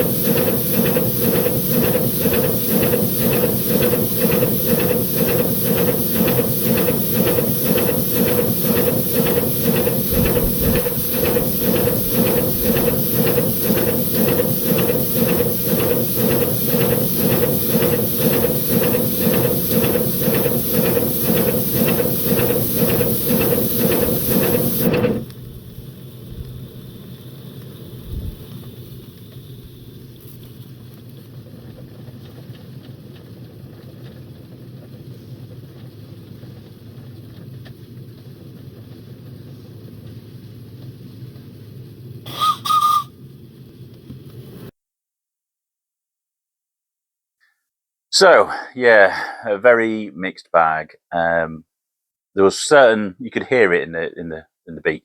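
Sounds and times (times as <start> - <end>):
steady hiss: 0.0 - 31.3
steam exhaust beats: 0.0 - 43.2.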